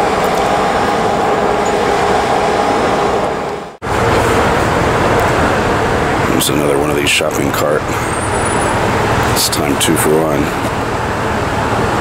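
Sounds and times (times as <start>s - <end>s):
passing traffic: 0.0s - 12.0s.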